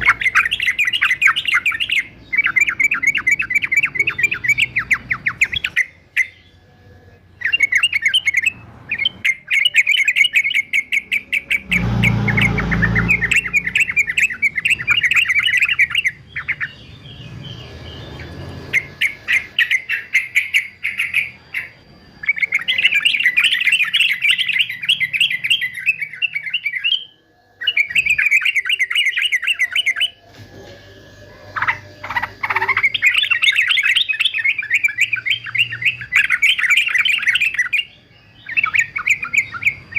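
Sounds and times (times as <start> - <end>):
bird singing rapid chattering notes: 0.0 - 39.9.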